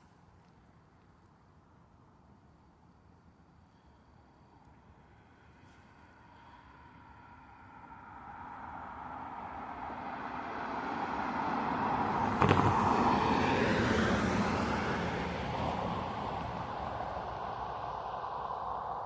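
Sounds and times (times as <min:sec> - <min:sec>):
vehicle passing close by: 0:07.3 - 0:19.0
sharp knock: 0:12.4 - 0:13.0.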